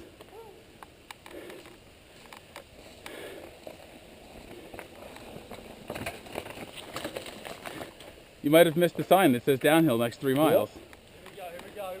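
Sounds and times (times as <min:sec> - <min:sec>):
bike tyres on dirt trail: 0:00.0 - 0:12.0
bike clicks and rattles: 0:01.1 - 0:08.8.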